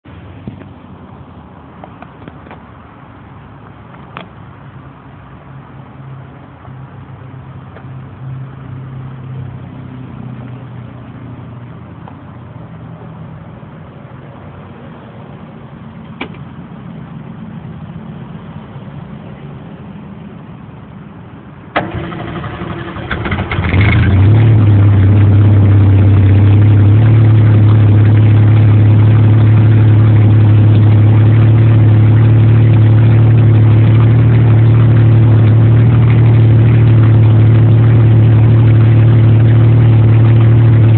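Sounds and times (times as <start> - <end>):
low hum: 0.0 - 40.9
engine idling loudly: 21.7 - 40.9
engine cranking: 21.8 - 25.0.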